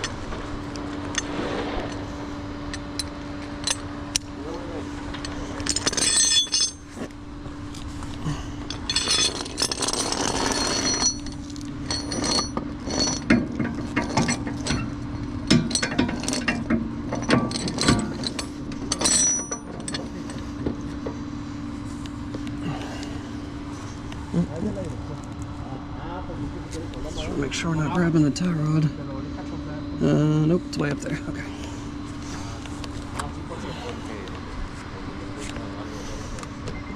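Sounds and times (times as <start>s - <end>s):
steady low hum: 0.0s - 36.9s
chain and hook clanking on metal: 5.1s - 7.1s, 8.3s - 20.8s.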